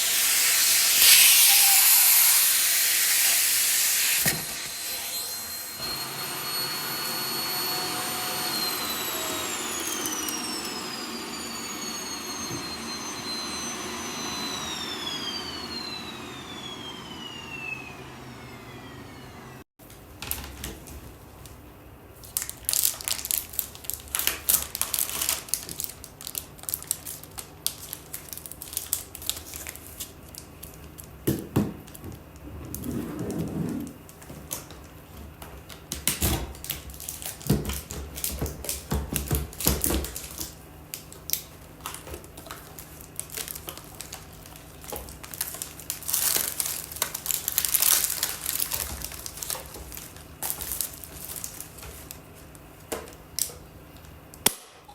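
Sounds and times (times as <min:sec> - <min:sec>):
plastic crinkling: 0:22.2 - 0:31.2, 0:39.5 - 0:54.1.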